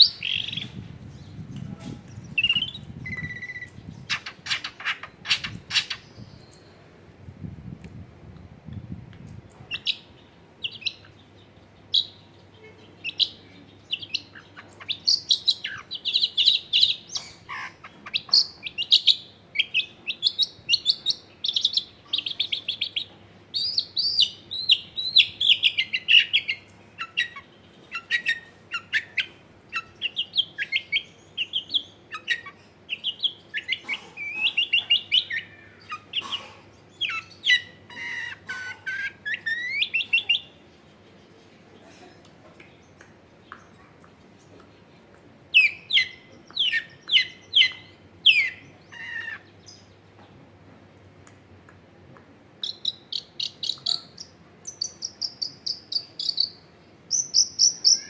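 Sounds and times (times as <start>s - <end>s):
bird singing chirps and whistles: 2.2s - 6.6s, 45.6s - 48.6s, 52.6s - 58.0s.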